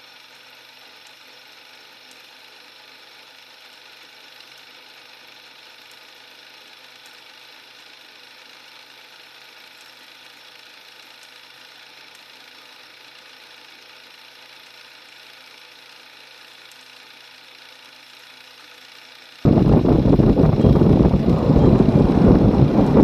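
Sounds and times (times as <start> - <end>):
faint mechanical hum: 0.0 - 23.0
motorcycle engine running: 15.4 - 23.0
wind rushing: 19.5 - 23.0.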